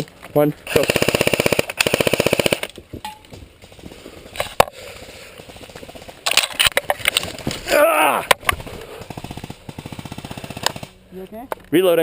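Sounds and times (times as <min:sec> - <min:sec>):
airsoft rifles firing: 0:00.7 - 0:02.8, 0:08.4 - 0:11.0.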